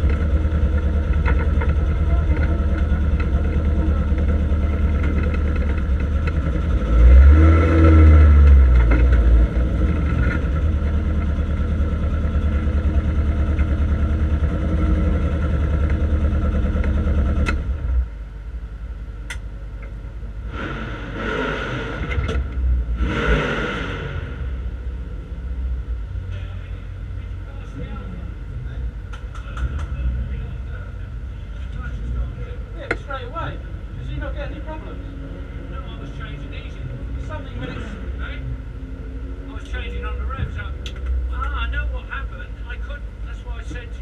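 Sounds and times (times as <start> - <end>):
race car engine running: 0.0 - 44.0.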